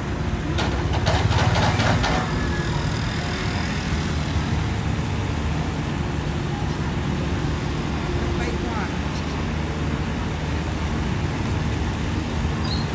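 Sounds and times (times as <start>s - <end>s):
excavator engine running: 0.0s - 8.2s
metal clanking and rattling: 0.4s - 2.9s.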